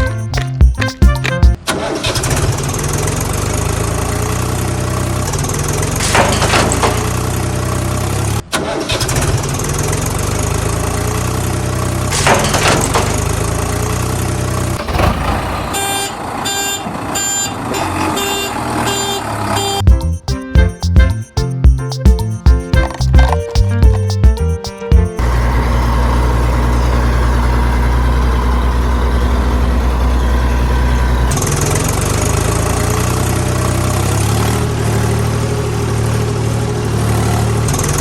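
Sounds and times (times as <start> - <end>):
regular beating sound: 0.0 - 1.7, 19.8 - 25.2
tractor engine droning: 1.0 - 20.0, 25.2 - 38.0.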